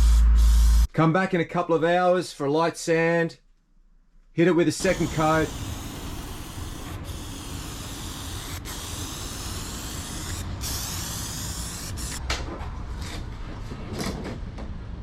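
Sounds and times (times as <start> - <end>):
aerosol spray paint hissing: 0.0 - 0.9, 4.8 - 12.2.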